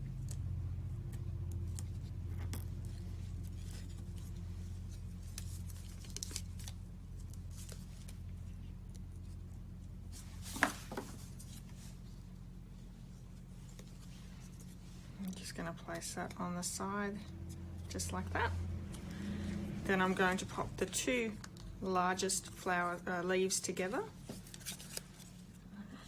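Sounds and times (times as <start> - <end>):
steady low hum: 0.0 - 26.0
paper clicks and rustles: 1.4 - 9.4.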